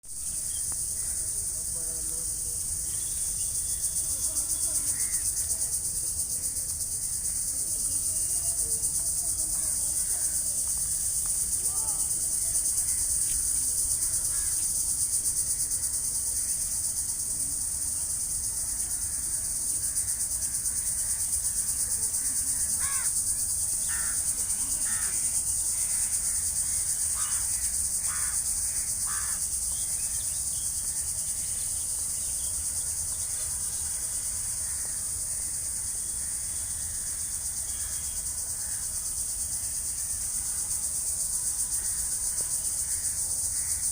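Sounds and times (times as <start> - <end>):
insects trilling: 0.0 - 43.9.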